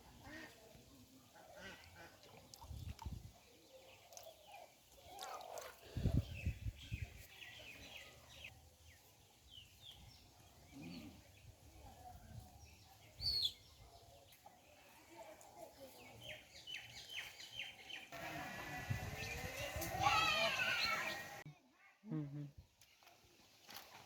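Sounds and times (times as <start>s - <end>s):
wild birds chirping: 1.3s - 15.0s, 16.0s - 21.4s.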